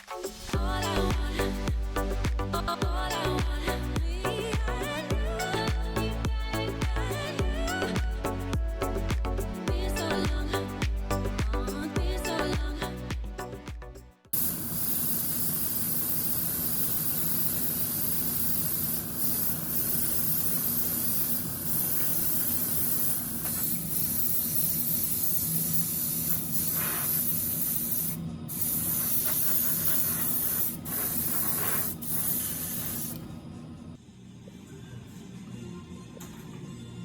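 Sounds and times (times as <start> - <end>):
spray paint hissing: 14.4 - 33.3.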